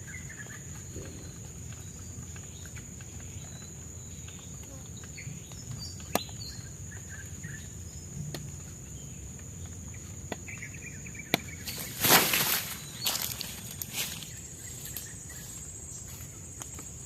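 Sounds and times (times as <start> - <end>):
loud rustling crunch: 11.6 - 16.4.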